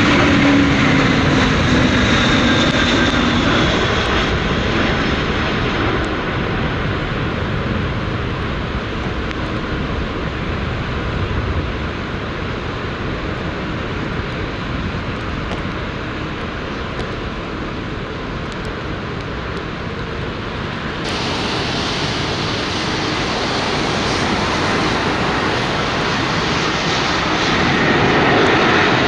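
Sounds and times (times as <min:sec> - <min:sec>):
jet engines roaring: 0:00.0 - 0:29.0
thin engine whine: 0:20.8 - 0:29.0.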